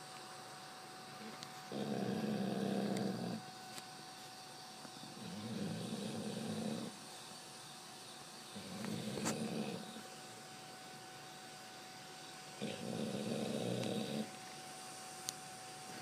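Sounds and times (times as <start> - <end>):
dog snoring: 1.2 - 3.5, 5.0 - 7.0, 8.5 - 10.1, 12.6 - 14.4.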